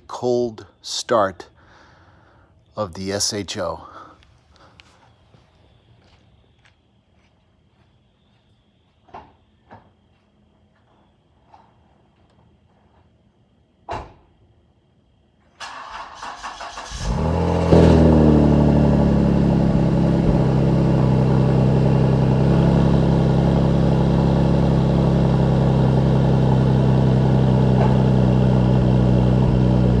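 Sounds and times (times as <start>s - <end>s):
starter motor cranking: 15.6s - 17.8s
car engine idling: 15.6s - 30.0s.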